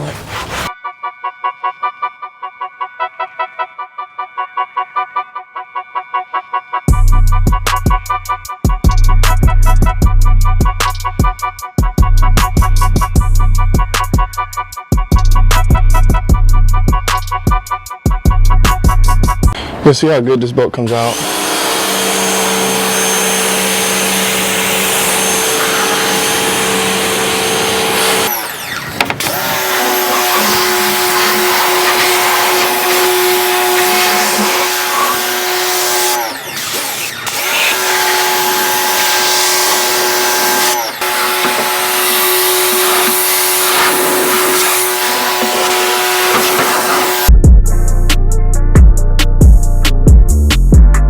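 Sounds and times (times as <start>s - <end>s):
pressure washer motor hum: 21.1s - 47.3s.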